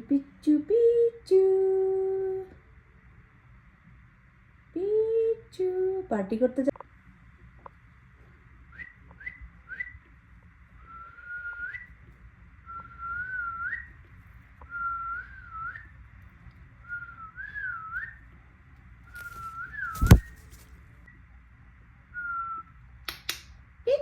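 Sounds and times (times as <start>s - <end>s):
sharp click: 19.9s - 20.5s.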